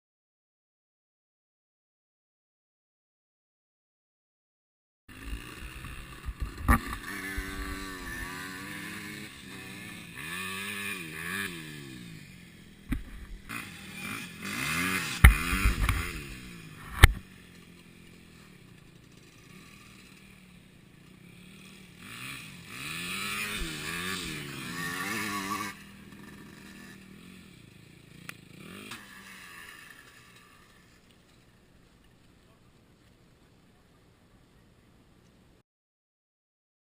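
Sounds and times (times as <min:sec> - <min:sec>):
motorcycle engines revving: 0:05.1 - 0:32.6.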